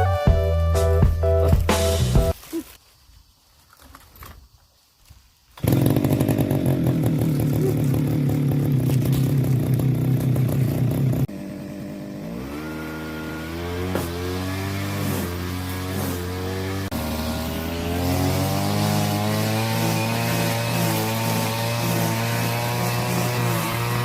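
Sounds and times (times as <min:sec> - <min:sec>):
brush cutter engine running: 0:05.6 - 0:24.0.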